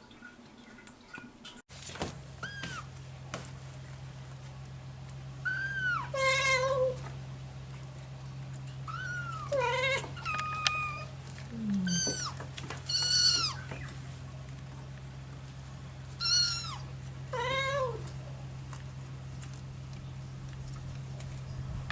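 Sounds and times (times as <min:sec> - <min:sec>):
kitten meowing: 0:02.4 - 0:02.9, 0:05.4 - 0:07.0, 0:08.8 - 0:13.9, 0:16.2 - 0:18.1.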